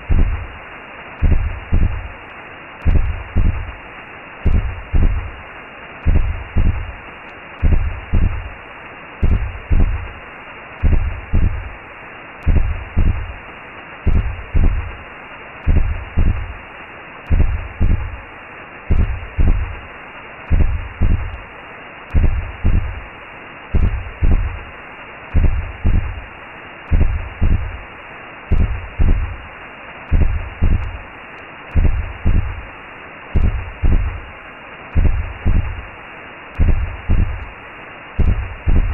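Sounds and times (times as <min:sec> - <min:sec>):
heartbeat thumps: 0:00.0 - 0:00.6, 0:01.2 - 0:02.2, 0:02.8 - 0:03.8, 0:04.4 - 0:05.4, 0:06.0 - 0:07.0, 0:07.6 - 0:08.6, 0:09.2 - 0:10.2, 0:10.8 - 0:11.8, 0:12.4 - 0:13.4, 0:14.0 - 0:15.0, 0:15.6 - 0:16.6, 0:17.3 - 0:18.2, 0:18.9 - 0:19.9, 0:20.5 - 0:21.4, 0:22.1 - 0:23.1, 0:23.7 - 0:24.7, 0:25.3 - 0:26.3, 0:26.9 - 0:27.9, 0:28.5 - 0:29.5, 0:30.1 - 0:31.0, 0:31.7 - 0:32.7, 0:33.4 - 0:34.3, 0:34.9 - 0:35.9, 0:36.6 - 0:37.6, 0:38.2 - 0:38.9
muffled whooshing hiss: 0:00.0 - 0:38.9.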